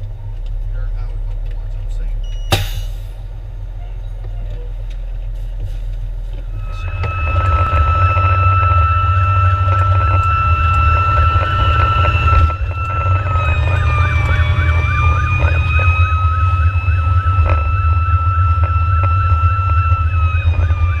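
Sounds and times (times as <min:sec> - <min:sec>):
engine and road rumble: 0:00.0 - 0:21.0
electronic siren yelping: 0:06.5 - 0:21.0
steady high siren tone: 0:06.5 - 0:21.0.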